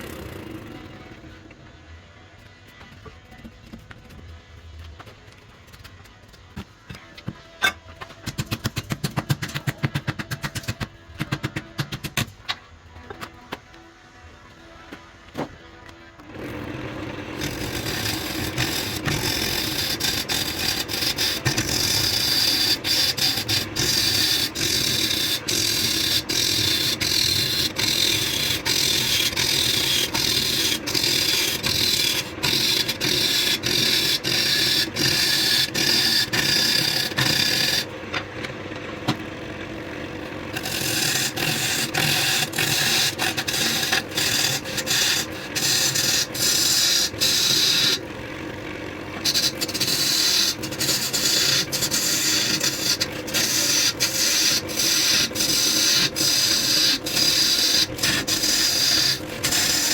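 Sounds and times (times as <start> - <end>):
lathe motor hum: 16.2 - 59.9
wood rasping on lathe: 16.3 - 38.8, 39.5 - 59.9.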